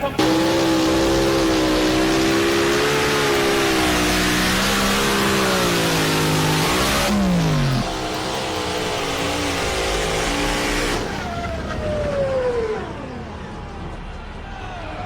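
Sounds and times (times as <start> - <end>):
tractor engine revving hard: 0.0 - 11.3
loud exhaust noise: 0.0 - 11.7.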